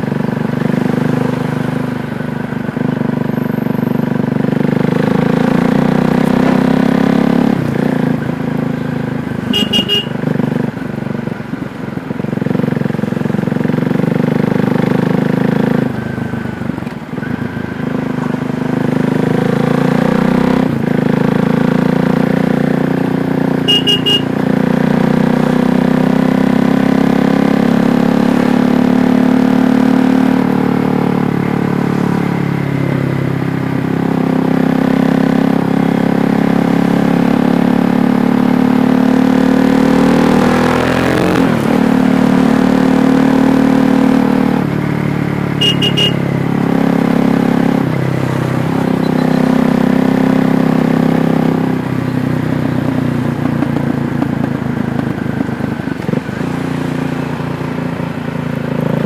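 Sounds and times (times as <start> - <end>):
motorcycle engine revving: 0.0 - 59.0
brief high beep: 23.7 - 24.3, 45.6 - 46.2, 49.0 - 49.4.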